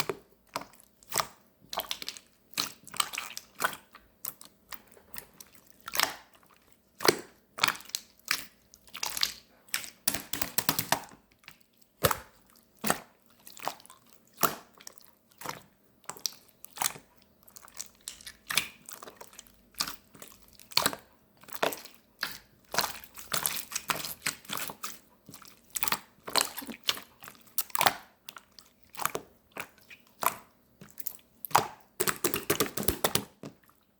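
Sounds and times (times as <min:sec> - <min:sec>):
slime popping and crackling: 0:31.0 - 0:33.4.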